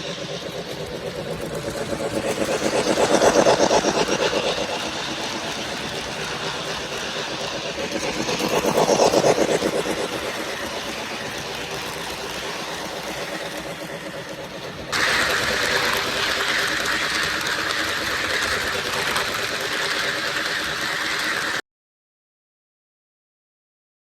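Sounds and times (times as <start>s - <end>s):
model train running on track: 0.0s - 21.6s.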